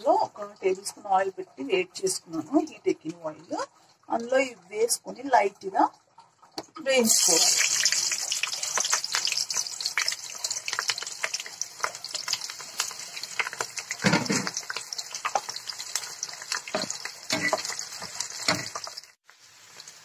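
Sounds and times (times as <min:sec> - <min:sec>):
onion sizzling in hot oil: 0:06.8 - 0:20.0
steel spoon stirring: 0:16.0 - 0:19.0.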